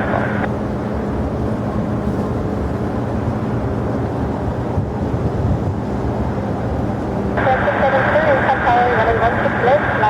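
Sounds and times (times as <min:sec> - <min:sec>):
jet engine rumble: 0:00.0 - 0:10.0
wind noise on microphone: 0:02.0 - 0:07.8.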